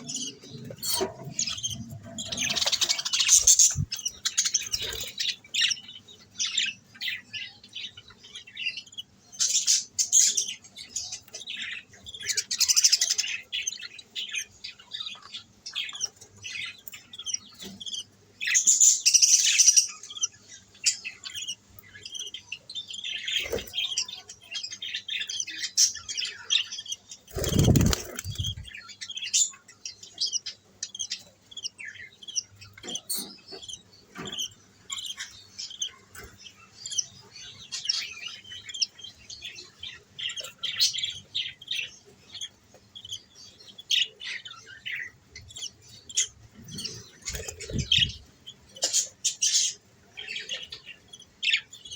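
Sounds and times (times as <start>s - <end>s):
budgerigars chirping and chattering: 0.0s - 51.9s.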